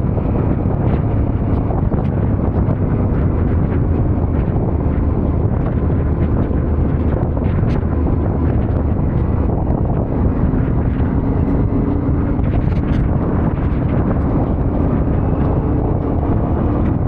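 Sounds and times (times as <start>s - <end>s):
motorcycle engine running: 0.0s - 17.0s
wind rushing on microphone: 0.0s - 17.0s.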